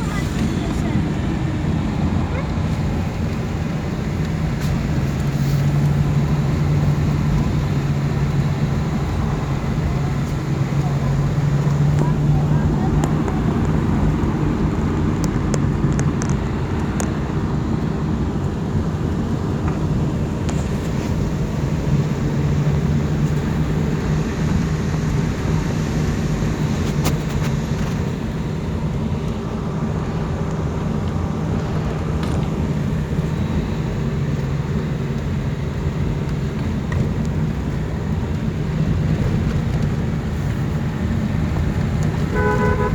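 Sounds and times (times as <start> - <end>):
car engine and road noise: 0.0 - 42.9
low steady hum: 36.6 - 42.9.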